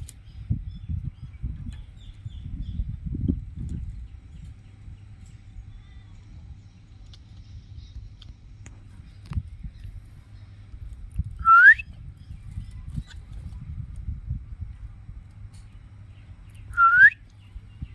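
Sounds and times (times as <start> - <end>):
steady low rumble: 0.0 - 17.9
myna rising whistle: 11.4 - 11.8, 16.7 - 17.2.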